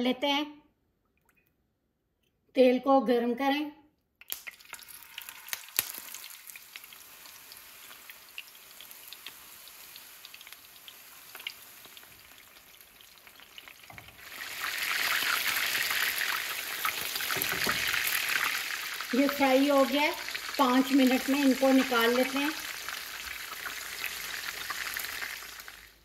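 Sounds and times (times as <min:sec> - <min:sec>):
oil popping: 0:04.2 - 0:19.4
meat sizzling in oil: 0:04.3 - 0:26.0.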